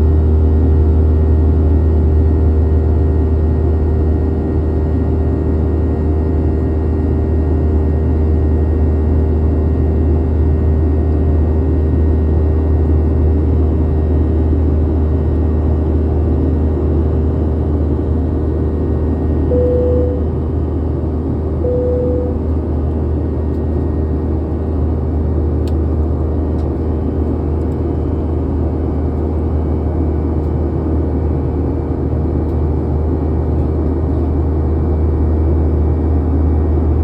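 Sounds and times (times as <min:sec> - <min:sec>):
jet engines running: 0:14.0 - 0:34.0.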